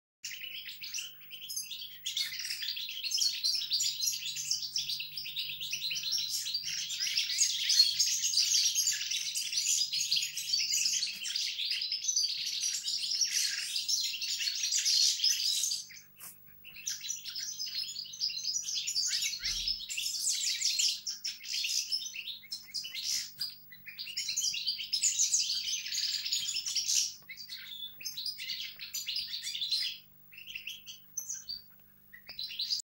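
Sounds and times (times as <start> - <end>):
songbirds twittering and warbling: 0.2 - 32.9.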